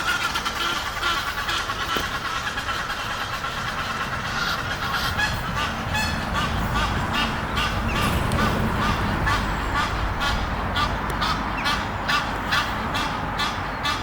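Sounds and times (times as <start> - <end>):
geese honking: 0.0 - 14.0
low rumble: 3.6 - 12.4.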